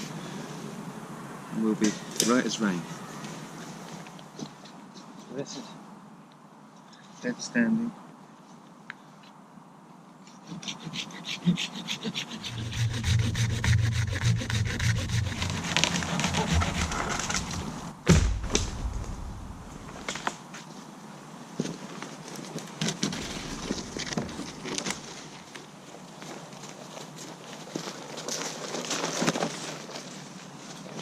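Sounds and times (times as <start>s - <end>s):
hand saw cutting wood: 10.3s - 17.9s
scrapes and knocks of wood: 12.5s - 19.2s, 22.4s - 25.6s
wood cracking: 14.6s - 20.4s, 22.8s - 25.7s.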